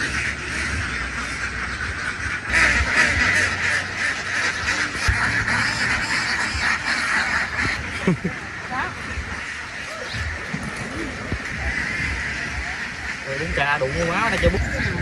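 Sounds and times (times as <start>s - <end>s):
flock of ducks quacking: 0.0s - 15.0s.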